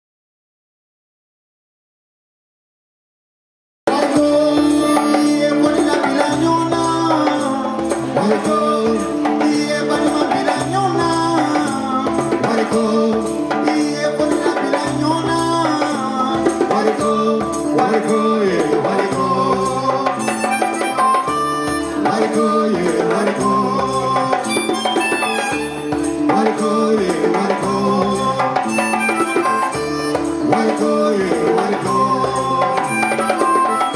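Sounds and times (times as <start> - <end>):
band playing melodic lines: 3.9 - 33.9
rattling percussion: 3.9 - 33.9.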